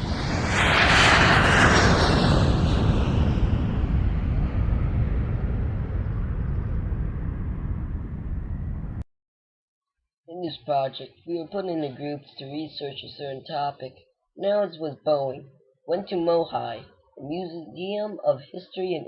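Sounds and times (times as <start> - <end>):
jet aircraft taking off: 0.0 - 9.0.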